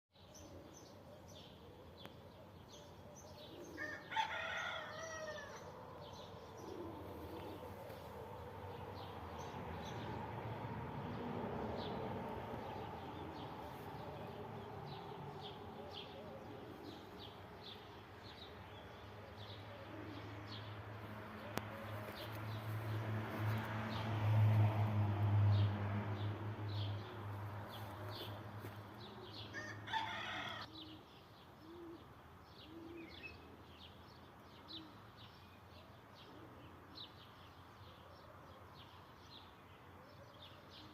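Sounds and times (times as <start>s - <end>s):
sparrows chirping: 0.1s - 24.1s, 25.5s - 40.9s
rooster crowing: 3.8s - 5.7s, 29.5s - 30.8s.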